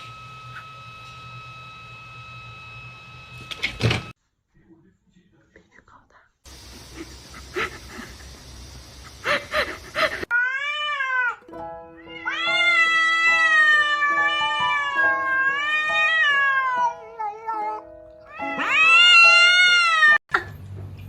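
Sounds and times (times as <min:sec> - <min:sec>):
hiss: 0:06.5 - 0:10.3
cat meowing and yowling: 0:10.3 - 0:11.4, 0:12.0 - 0:20.2
background music with held notes: 0:11.3 - 0:20.1.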